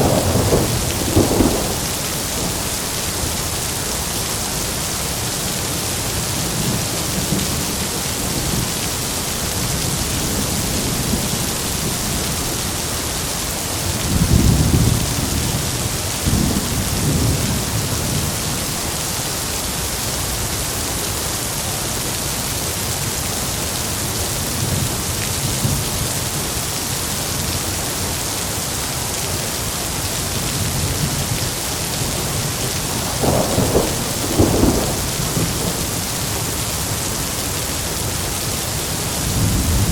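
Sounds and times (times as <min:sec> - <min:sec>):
sharp thunder crack: 0:00.0 - 0:03.3, 0:32.8 - 0:36.3
thunder rumbling: 0:00.0 - 0:03.8, 0:30.6 - 0:37.4, 0:39.0 - 0:39.9
heavy rain falling: 0:00.0 - 0:39.9.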